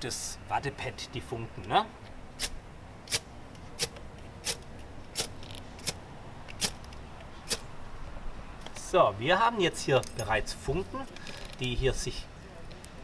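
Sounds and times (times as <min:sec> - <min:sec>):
striker scraping fire steel: 0:02.4 - 0:06.0.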